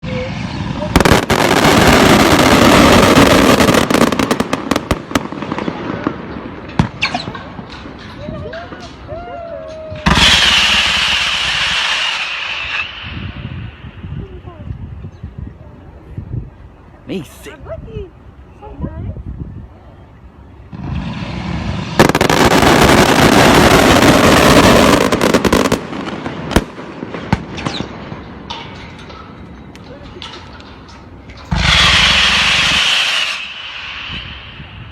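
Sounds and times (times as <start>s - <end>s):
fireworks crackling and cracking: 0.0s - 14.4s, 20.8s - 34.9s
firework hiss: 10.0s - 14.1s, 31.5s - 34.9s.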